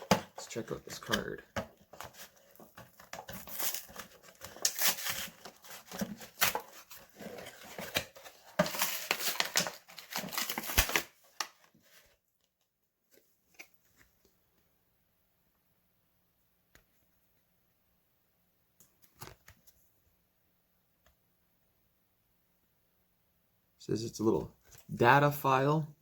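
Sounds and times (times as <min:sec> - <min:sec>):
packaging crinkling and rustling: 0:00.0 - 0:12.2.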